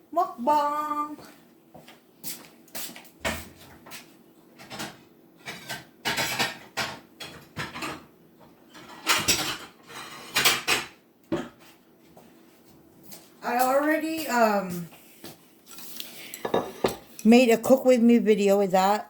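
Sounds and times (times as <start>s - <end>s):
dishes and cutlery clinking: 4.6s - 8.1s, 8.8s - 10.9s, 16.4s - 17.3s.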